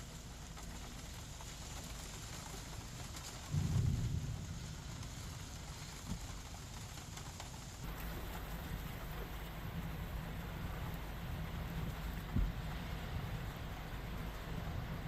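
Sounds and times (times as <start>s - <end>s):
rain: 0.0s - 15.0s
wind: 0.0s - 15.0s
low thunder rumble: 3.5s - 5.2s.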